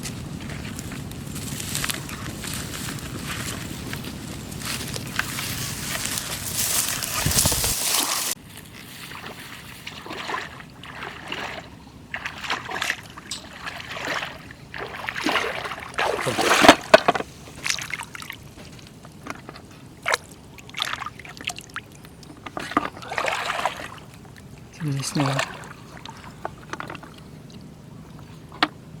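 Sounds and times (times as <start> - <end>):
splashing in shallow water: 0.0 - 28.6.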